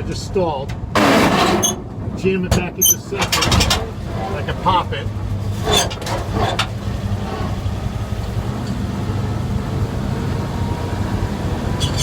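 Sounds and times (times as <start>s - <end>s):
truck engine idling: 2.8s - 12.0s.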